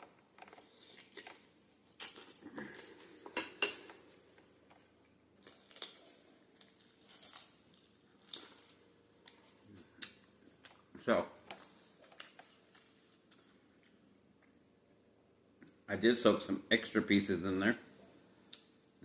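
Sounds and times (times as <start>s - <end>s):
cutlery clinking on soup bowl: 3.2s - 4.1s.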